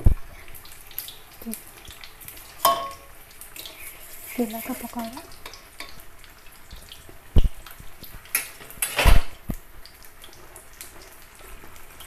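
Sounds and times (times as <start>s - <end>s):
batter crackling in hot oil: 0.0s - 12.0s.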